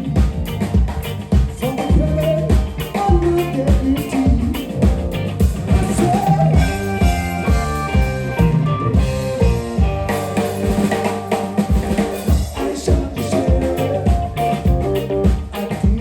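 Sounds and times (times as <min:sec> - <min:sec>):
bass line: 0:00.0 - 0:16.0
drum kit steady beat: 0:00.0 - 0:16.0
held notes from instruments: 0:05.4 - 0:15.3.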